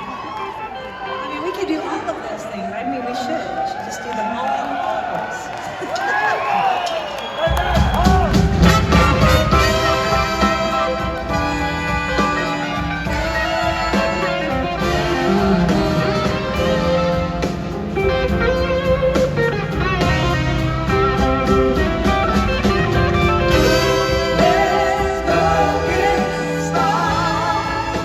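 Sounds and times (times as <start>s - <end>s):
blues band playing: 7.4s - 28.0s
electric guitar lead: 8.4s - 28.0s.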